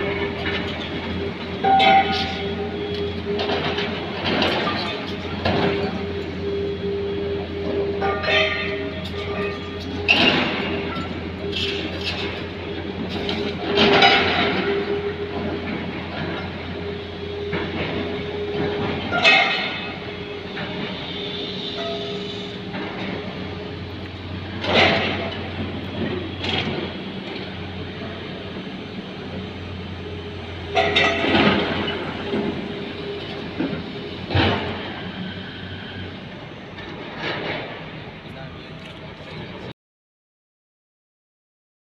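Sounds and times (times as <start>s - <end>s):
metallic squeals and clanks: 0.0s - 28.2s, 29.4s - 37.0s
excavator diesel engine running: 0.0s - 39.7s.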